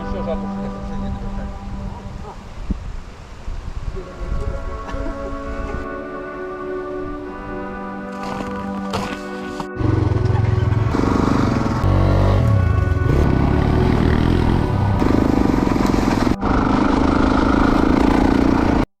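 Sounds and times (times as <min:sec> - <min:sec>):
background music: 0:00.0 - 0:03.0, 0:03.8 - 0:18.8
dirt bike engines revving: 0:09.8 - 0:18.9.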